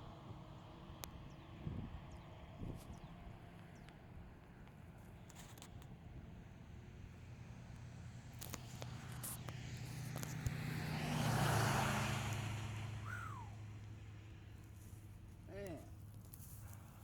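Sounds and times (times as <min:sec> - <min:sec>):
vehicle passing on road: 0:05.9 - 0:17.0.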